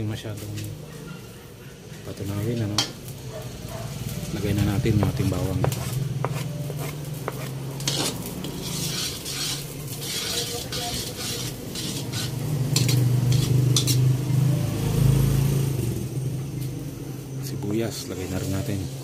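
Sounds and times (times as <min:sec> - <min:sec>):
garlic sizzling: 0:02.1 - 0:19.0
metal spoon scraping a pot: 0:05.6 - 0:14.2.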